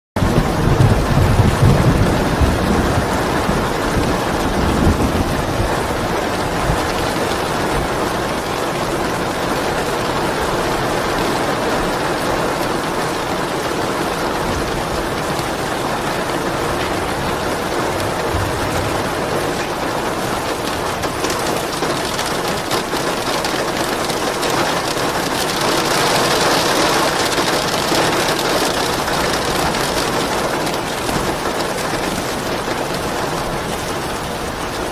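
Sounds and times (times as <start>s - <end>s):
heavy rainfall: 0.2s - 34.9s
low rumble: 16.8s - 21.1s.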